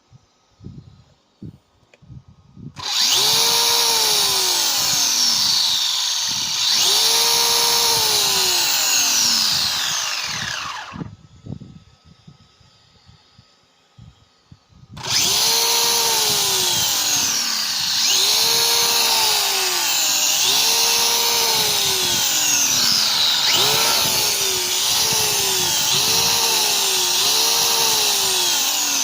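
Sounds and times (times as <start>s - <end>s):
electric motor whining: 2.8s - 11.2s, 15.0s - 29.0s.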